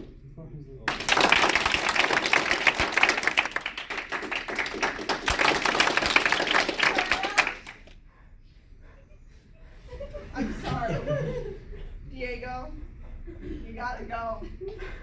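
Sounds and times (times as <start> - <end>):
audience applauding and cheering: 0.9 - 8.0.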